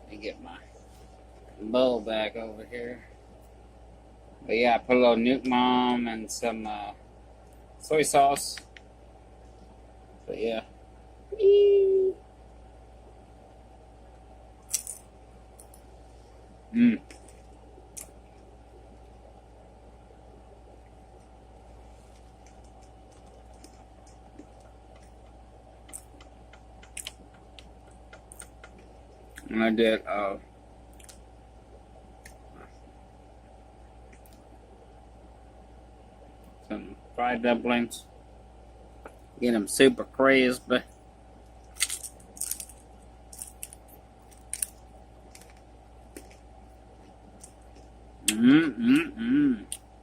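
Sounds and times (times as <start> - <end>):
soft chewing: 14.6 - 19.3, 20.7 - 29.6, 30.8 - 31.3, 40.8 - 50.0.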